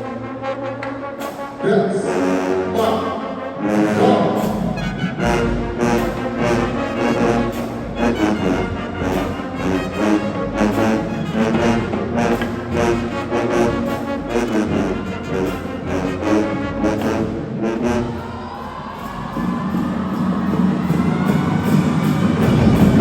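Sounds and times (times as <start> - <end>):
marching band brass: 0.0 - 23.0
drum hits: 4.0 - 15.2, 19.1 - 23.0.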